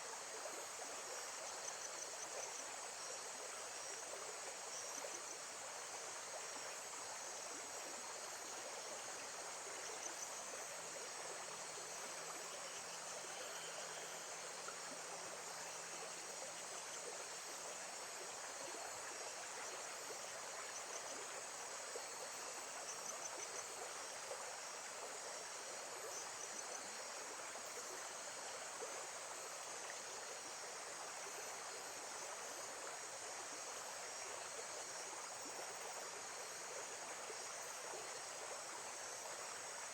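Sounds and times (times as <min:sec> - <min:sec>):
faint high insect chirps: 0:00.0 - 0:39.9.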